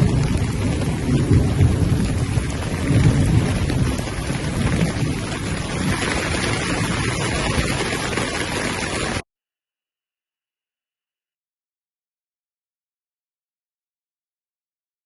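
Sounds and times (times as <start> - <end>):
rain falling: 0.0 - 9.2.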